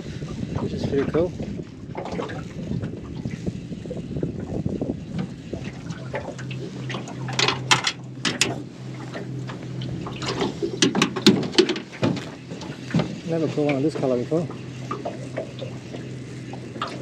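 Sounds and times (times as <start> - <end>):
steady low hum: 0.0 - 17.0
squid squirting and splashing water: 14.5 - 17.0.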